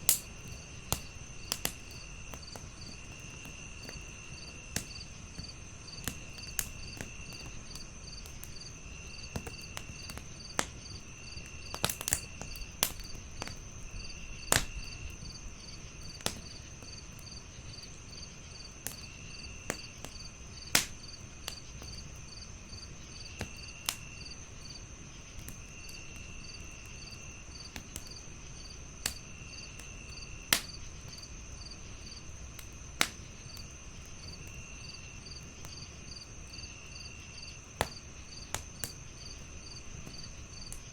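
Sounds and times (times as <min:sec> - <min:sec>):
crickets chirping: 0:00.0 - 0:40.9
low cricket trill: 0:00.0 - 0:40.9
wood fire crackling and popping: 0:00.0 - 0:40.9.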